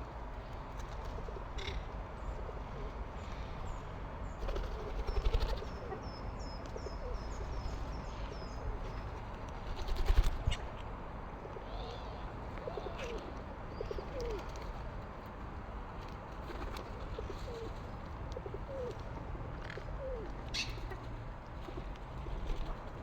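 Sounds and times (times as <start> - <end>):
pigeon cooing: 11.6 - 14.5, 17.1 - 17.8, 18.4 - 19.0, 19.7 - 20.3.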